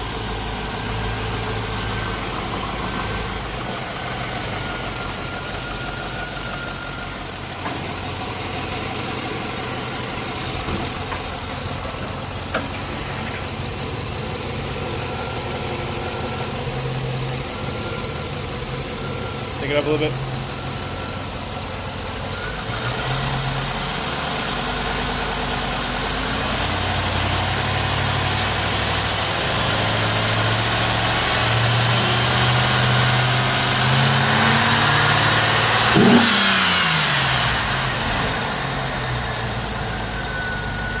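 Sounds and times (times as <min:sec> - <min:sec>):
car engine revving: 0:30.4 - 0:39.6.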